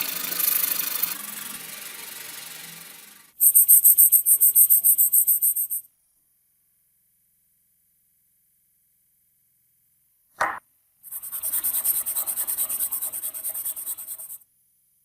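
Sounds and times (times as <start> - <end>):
scrubbing on metal grinder: 11.1 - 14.4.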